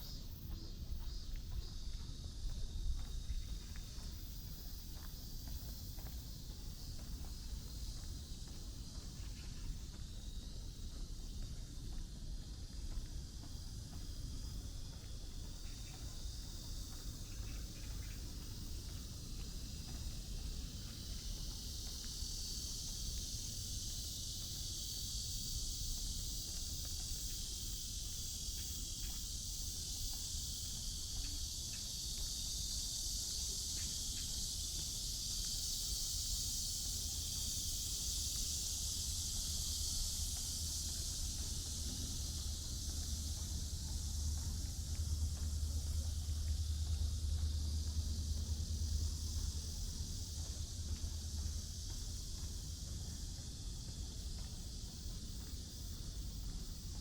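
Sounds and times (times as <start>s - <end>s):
high-pitched insect chorus: 0.0s - 57.0s
low background rumble: 38.8s - 56.8s.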